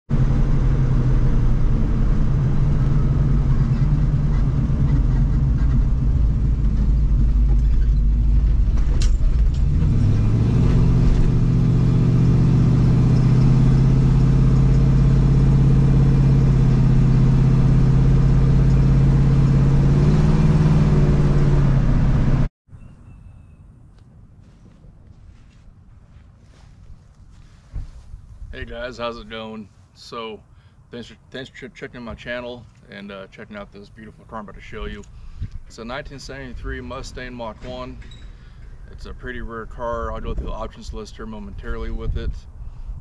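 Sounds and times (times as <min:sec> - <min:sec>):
car engine running: 0:00.1 - 0:22.5.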